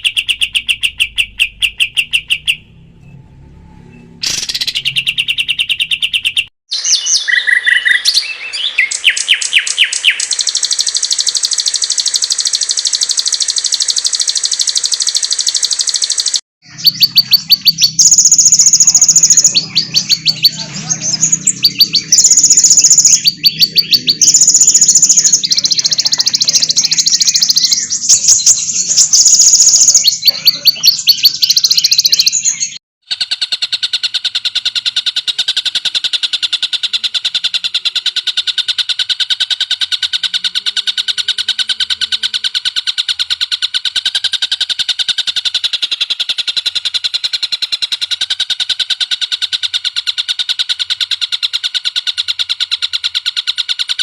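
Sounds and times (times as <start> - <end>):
bird repeating rapid high notes: 0.0 - 2.7, 4.2 - 54.0
songbird chirps and trills: 0.0 - 3.2, 3.8 - 32.8.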